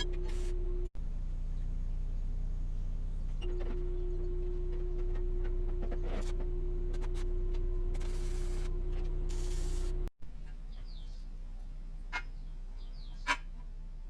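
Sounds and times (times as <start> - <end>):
electric motor humming: 3.8 - 10.1.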